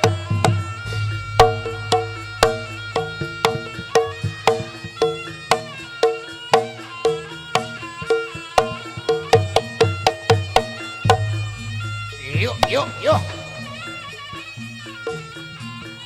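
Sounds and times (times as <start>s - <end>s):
low sustained tone: 0.0s - 9.3s, 10.6s - 15.8s
ringing pitched percussion: 0.0s - 16.0s.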